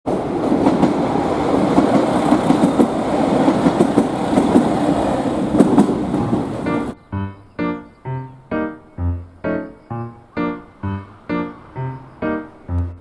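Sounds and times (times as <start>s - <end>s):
train wheels rumbling on rails: 0.1s - 7.0s.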